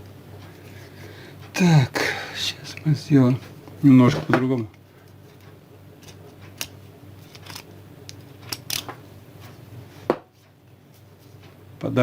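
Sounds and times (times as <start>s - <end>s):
faint steady hum: 0.0s - 12.0s
wire and tools clicking: 4.6s - 9.0s.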